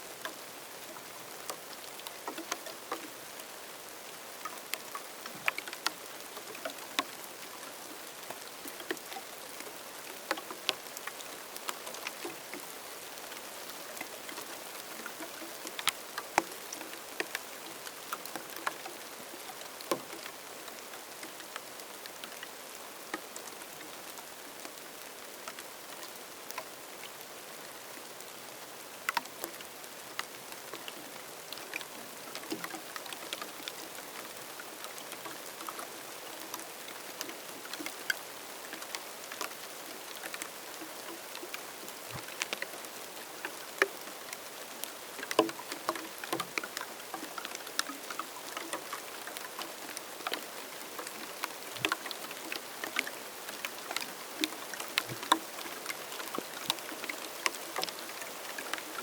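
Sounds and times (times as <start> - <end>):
raindrops ticking: 1.4 - 27.2, 29.0 - 59.0.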